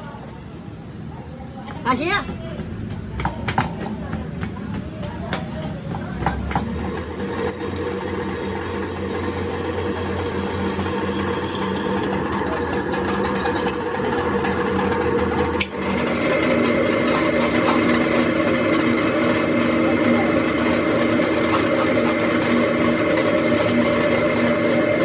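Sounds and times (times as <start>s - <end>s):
power tool motor running: 6.6s - 25.0s.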